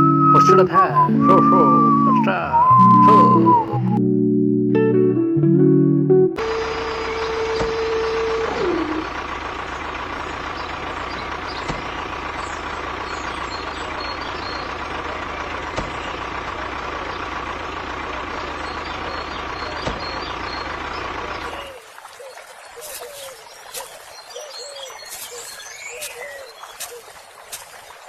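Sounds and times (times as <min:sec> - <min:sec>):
tone gliding down: 0:00.0 - 0:09.1.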